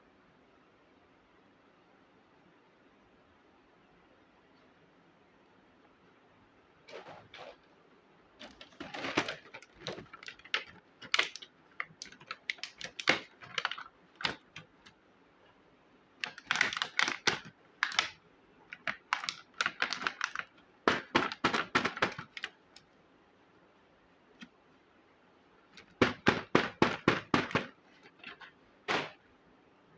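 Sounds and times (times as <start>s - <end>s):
plastic toy pieces clicking: 8.6s - 14.7s, 16.2s - 22.8s.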